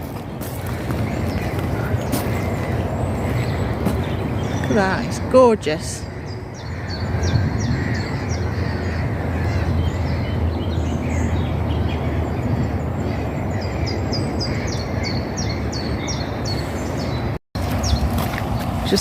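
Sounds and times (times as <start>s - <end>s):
steady low rumble: 0.0s - 14.4s
songbird calling: 0.0s - 19.0s.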